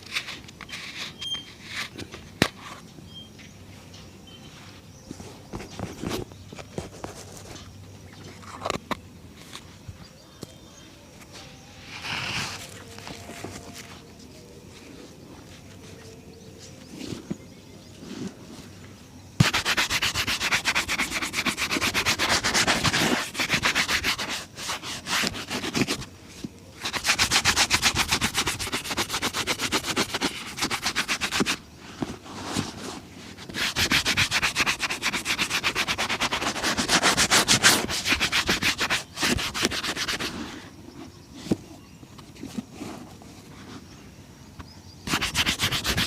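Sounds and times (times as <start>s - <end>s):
brush buffing leather shoe: 19.4s - 26.1s, 26.8s - 31.6s, 33.4s - 40.4s, 45.1s - 46.0s.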